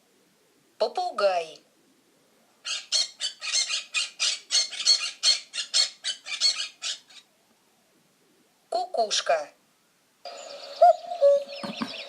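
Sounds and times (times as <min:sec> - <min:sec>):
parrot squawking: 0:02.6 - 0:07.3.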